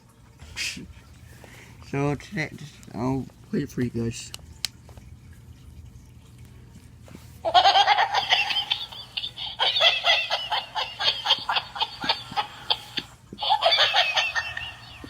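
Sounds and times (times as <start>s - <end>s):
toy monkey laughter: 7.4s - 15.0s.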